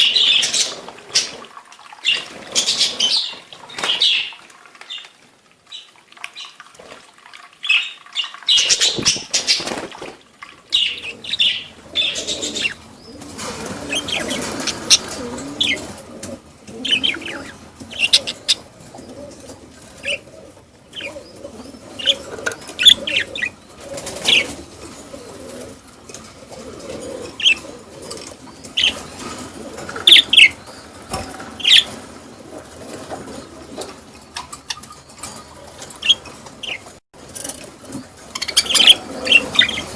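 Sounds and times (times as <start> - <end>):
wings flapping: 8.6 - 39.9
budgerigars chirping: 10.7 - 25.1, 27.2 - 32.1, 34.3 - 37.0, 38.3 - 39.9.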